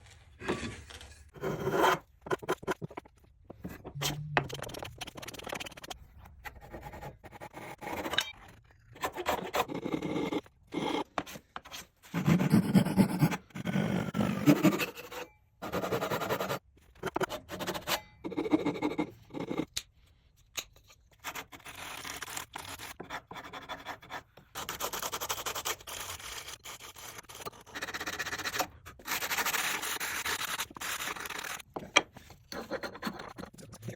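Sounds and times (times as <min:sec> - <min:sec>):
wood rasping and scraping: 0:09.0 - 0:18.0.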